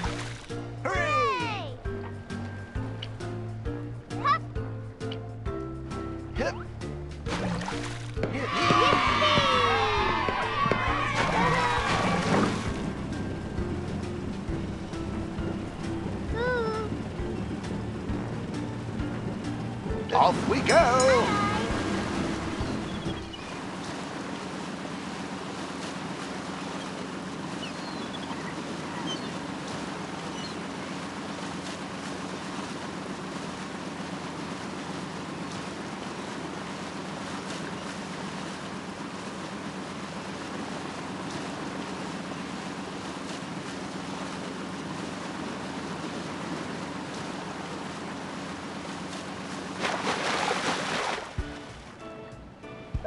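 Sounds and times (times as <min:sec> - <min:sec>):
water rushing: 0:00.0 - 0:05.3, 0:06.2 - 0:53.0
motorboat engine drone: 0:00.0 - 0:53.0.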